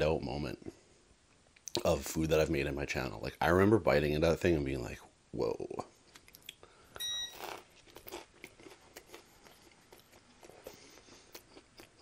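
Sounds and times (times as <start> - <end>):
soft chewing with wet clicks: 1.5 - 1.9, 7.4 - 12.0
crispy breading crunching: 7.3 - 12.0.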